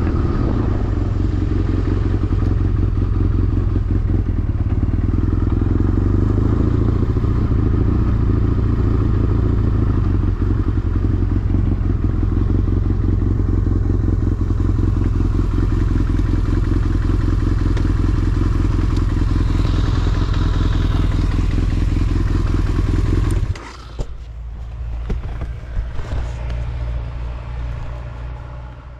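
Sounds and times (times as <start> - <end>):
motorcycle engine running: 0.0 - 28.9
low rumble with knocks: 17.6 - 28.8.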